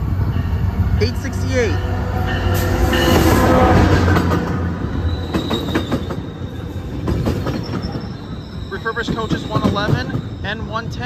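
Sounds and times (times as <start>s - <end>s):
diesel locomotive passing: 0.0s - 11.0s
train wheels clicking on rail: 2.6s - 10.8s
high brake squeal: 4.8s - 11.0s.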